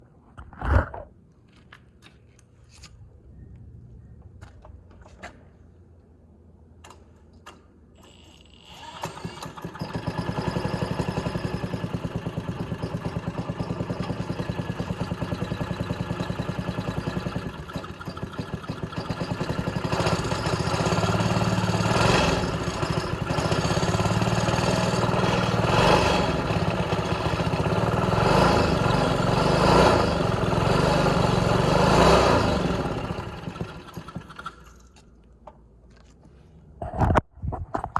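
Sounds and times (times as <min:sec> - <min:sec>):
small engine running: 0:08.0 - 0:35.0.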